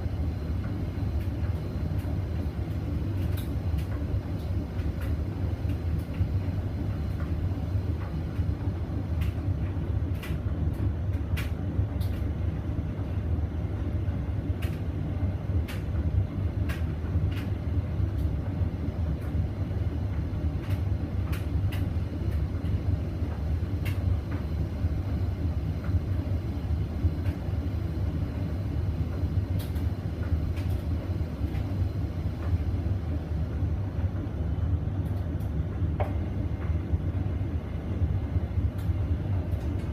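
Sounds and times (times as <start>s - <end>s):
washing machine drum rumble: 0.0s - 39.9s
light clicks and ticks: 14.6s - 14.8s.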